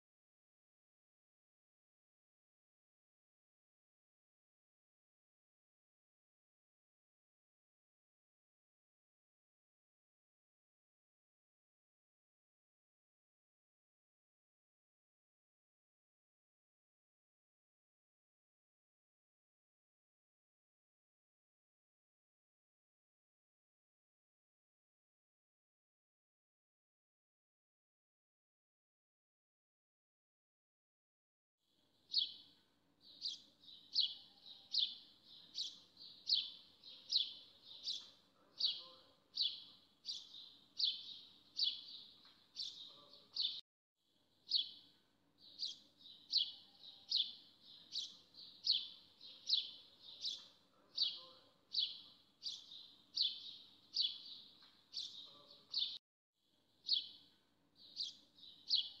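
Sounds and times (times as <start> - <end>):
bird chirping: 31.9 - 43.6, 44.4 - 56.0, 56.8 - 59.0.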